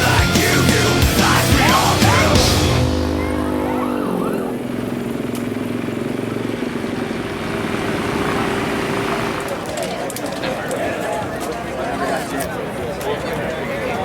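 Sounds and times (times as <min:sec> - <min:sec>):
engine running steadily: 0:00.0 - 0:10.5.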